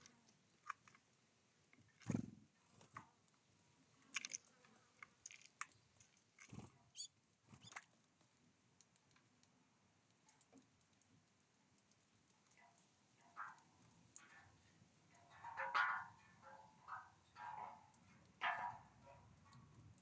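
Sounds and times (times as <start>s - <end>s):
birds pecking and cracking seeds: 0.0s - 20.0s.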